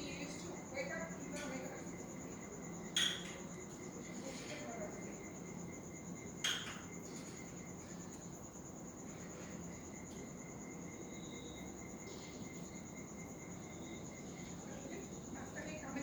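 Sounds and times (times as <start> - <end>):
cricket trilling: 0.0 - 16.0.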